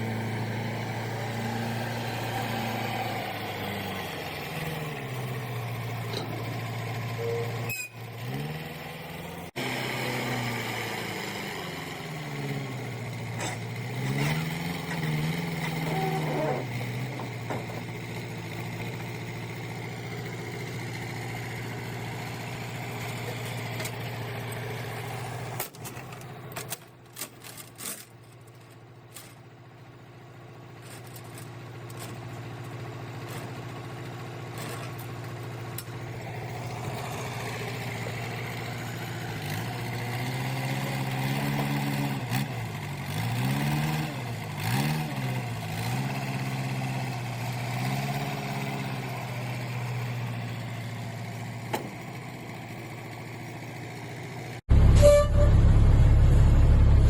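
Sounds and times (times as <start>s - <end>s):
vehicle engine revving: 6.5s - 19.9s, 36.2s - 50.4s.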